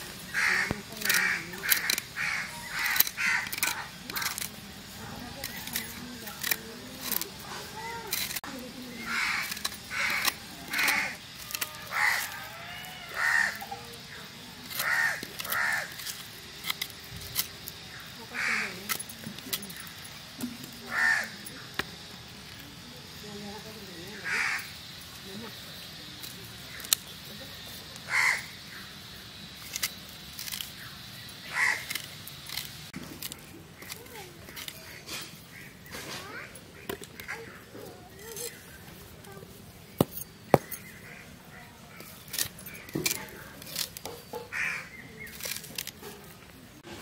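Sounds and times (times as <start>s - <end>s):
crow cawing: 0.3s - 4.3s, 9.0s - 13.8s, 14.8s - 16.0s, 18.3s - 18.8s, 20.9s - 21.4s, 24.2s - 24.7s, 28.1s - 28.6s, 31.5s - 31.9s, 44.5s - 45.0s.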